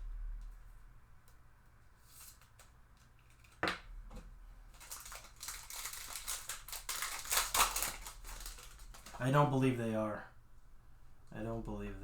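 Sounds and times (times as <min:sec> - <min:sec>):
foil wrapper crinkling and tearing: 0:04.7 - 0:09.3.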